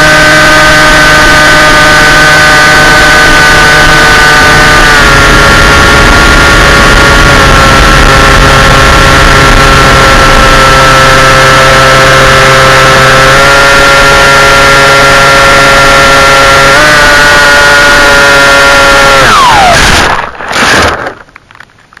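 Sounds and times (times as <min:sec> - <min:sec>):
small aircraft engine running: 0:00.0 - 0:20.1.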